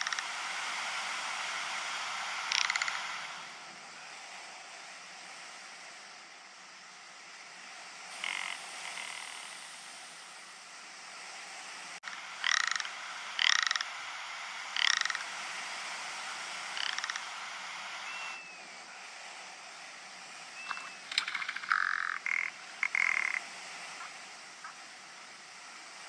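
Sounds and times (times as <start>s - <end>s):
bird rattling calls: 8.1s - 9.7s, 12.4s - 14.0s, 14.7s - 15.3s, 16.7s - 17.4s, 20.6s - 23.4s.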